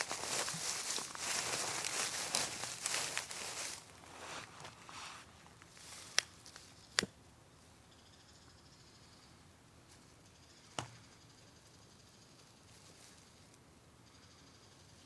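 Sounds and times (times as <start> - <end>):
campfire crackling: 0.0 - 4.2.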